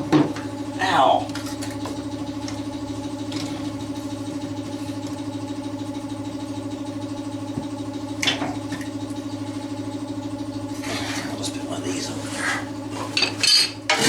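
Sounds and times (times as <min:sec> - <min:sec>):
motor humming steadily: 0:00.0 - 0:14.0.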